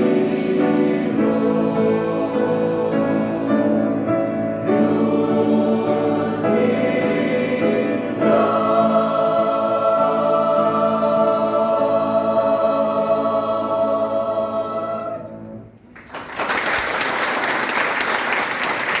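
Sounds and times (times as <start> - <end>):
choir holding a chord: 0.0 - 15.8
audience applause: 15.9 - 19.0.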